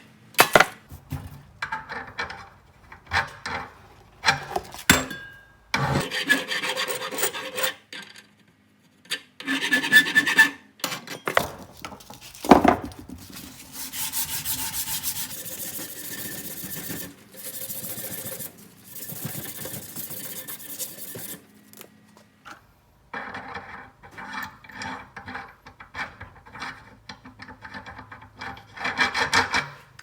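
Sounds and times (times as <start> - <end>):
metal file scraping metal: 5.8 - 7.8, 9.4 - 10.6, 13.2 - 21.6.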